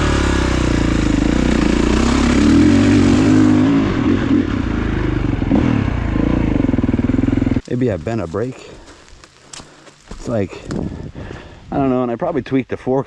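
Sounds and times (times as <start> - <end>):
dirt bike engine revving: 0.0 - 7.7.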